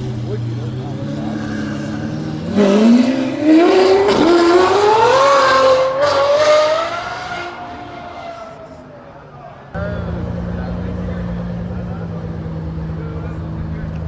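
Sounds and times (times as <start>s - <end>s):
car engine accelerating hard: 0.0s - 8.8s.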